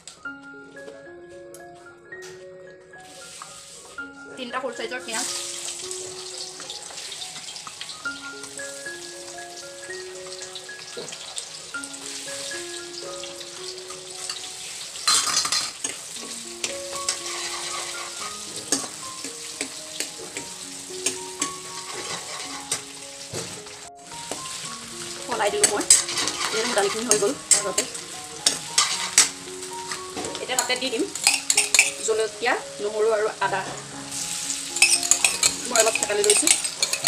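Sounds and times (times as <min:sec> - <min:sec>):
onions sizzling in hot oil: 0:03.0 - 0:37.0
spoon scraping metal pan: 0:15.0 - 0:16.0, 0:16.9 - 0:22.9, 0:25.5 - 0:32.0, 0:34.7 - 0:37.0.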